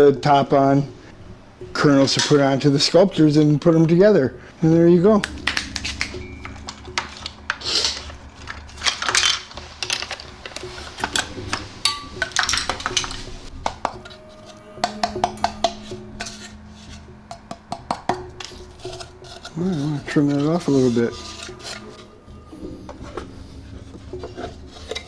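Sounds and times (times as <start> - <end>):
background music: 0.0 - 25.0
small hard parts clicking and clinking: 5.2 - 13.3.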